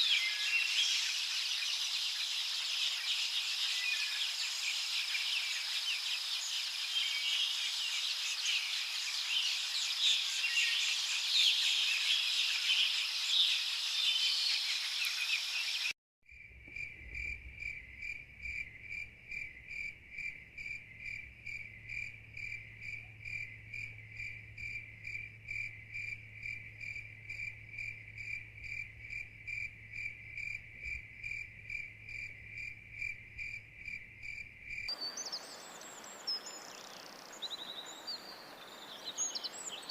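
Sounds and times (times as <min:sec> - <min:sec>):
songbirds chirping: 0:00.0 - 0:15.9, 0:25.7 - 0:39.9
cricket chirping: 0:00.0 - 0:39.9.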